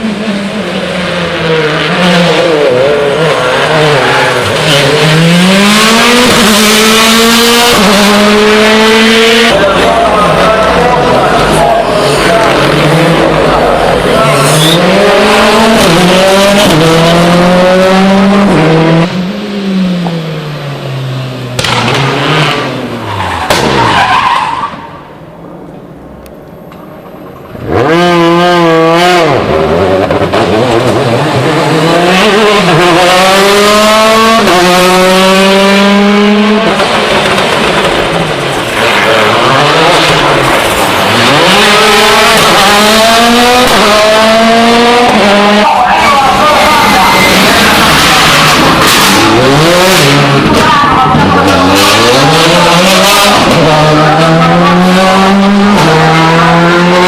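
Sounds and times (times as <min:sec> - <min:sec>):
rally car engines revving: 0:00.0 - 0:57.0
tyres skidding: 0:00.0 - 0:57.0.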